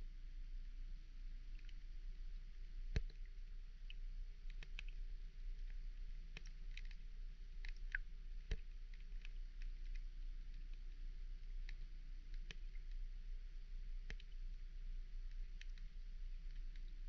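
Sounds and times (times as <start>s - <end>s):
steady low hum: 0.0s - 17.0s
underwater sharp clicks: 1.4s - 1.9s, 2.6s - 13.1s, 14.0s - 17.0s.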